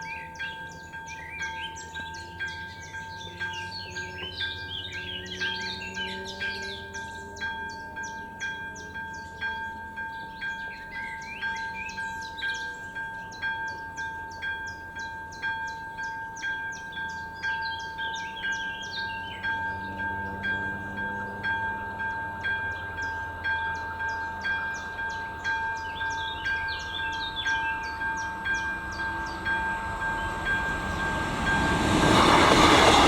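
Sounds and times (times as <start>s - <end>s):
electronic crossing bell dinging: 17.2s - 32.0s.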